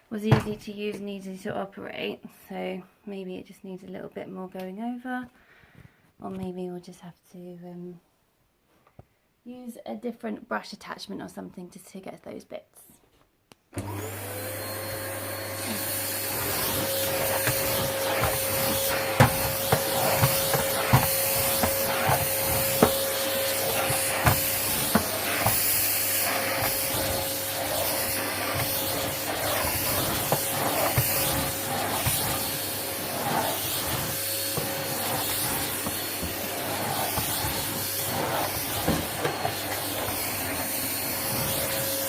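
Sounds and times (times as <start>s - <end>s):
vacuum cleaner motor whine: 13.8s - 42.0s.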